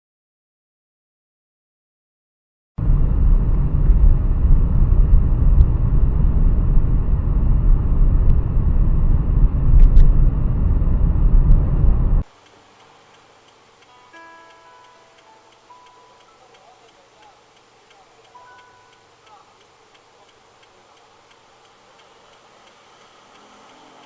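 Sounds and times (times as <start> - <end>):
vehicle engine and road rumble: 2.8 - 13.8, 16.4 - 24.0
faint ticks: 12.2 - 24.0.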